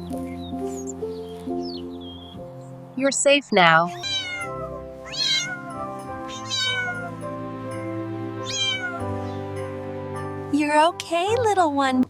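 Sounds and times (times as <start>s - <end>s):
background music: 0.0s - 12.0s
kitten meowing: 3.9s - 7.2s, 8.4s - 9.1s.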